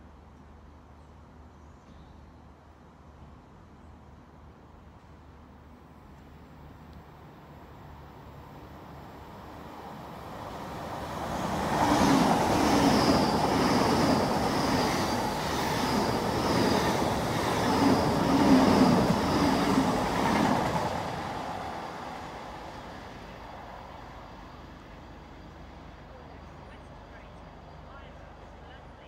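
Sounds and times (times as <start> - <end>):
express train passing at speed: 4.2 - 29.0.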